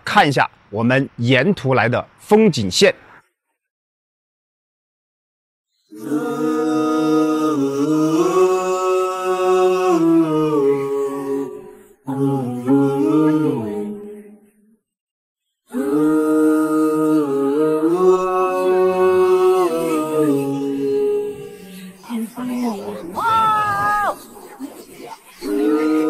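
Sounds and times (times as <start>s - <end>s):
person singing chant-like: 5.9s - 14.6s, 15.7s - 26.0s.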